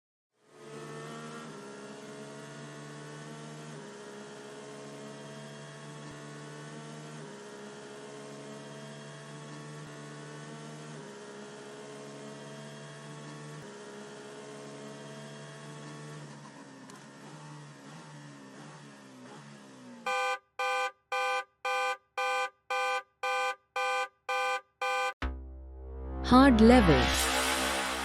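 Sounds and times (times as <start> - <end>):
held synth chords: 24.3 - 28.0.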